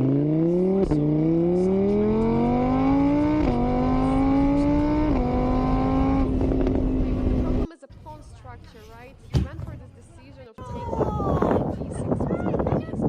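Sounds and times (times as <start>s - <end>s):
vehicle engine accelerating: 0.0s - 7.7s.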